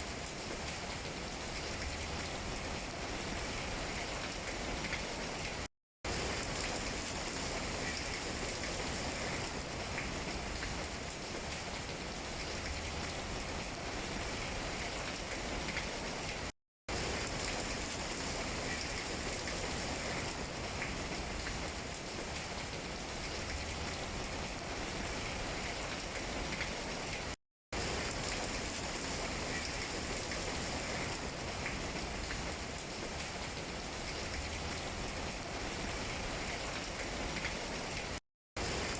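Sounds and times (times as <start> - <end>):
rain pattering on leaves: 0.0 - 38.9.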